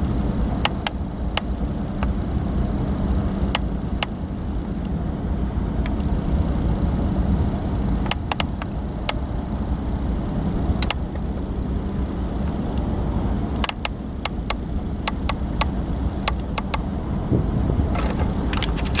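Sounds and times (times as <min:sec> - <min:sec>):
freight train rumbling: 0:00.0 - 0:19.0
sharp clicks: 0:00.6 - 0:02.2, 0:08.0 - 0:09.2, 0:10.8 - 0:11.3, 0:13.6 - 0:16.9.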